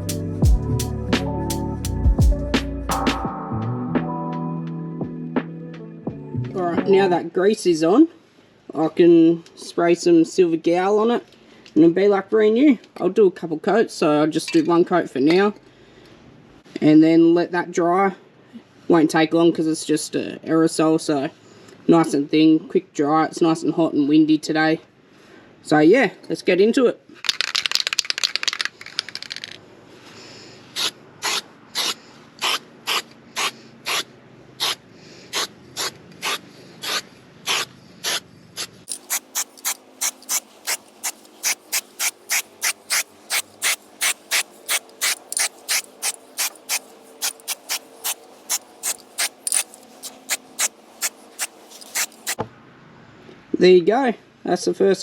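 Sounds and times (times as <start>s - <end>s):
aerosol can rattling: 27.2s - 29.6s, 38.9s - 52.4s
aerosol can spraying bursts: 30.8s - 52.4s.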